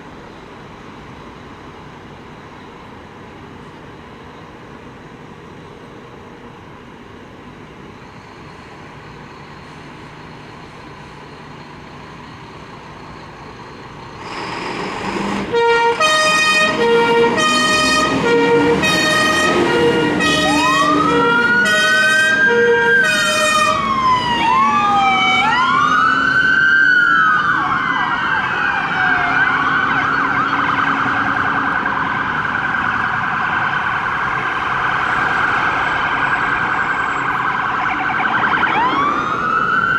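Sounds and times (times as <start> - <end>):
road noise: 0.0 - 39.9
wailing siren: 15.4 - 39.9
pulsing siren: 15.5 - 39.9
fast yelping siren: 16.9 - 39.9.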